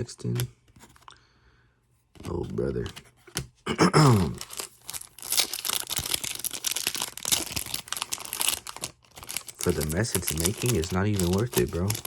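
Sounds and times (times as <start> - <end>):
person groaning: 3.7 - 4.5
wrapper tearing and crinkling: 4.3 - 12.0.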